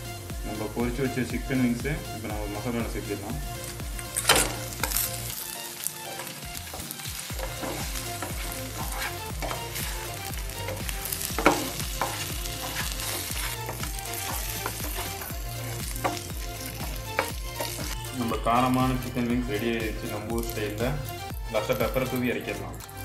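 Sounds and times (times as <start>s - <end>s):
chicken sizzling in oil: 0.2s - 23.0s
spatula scraping and knocking pan: 6.6s - 18.0s.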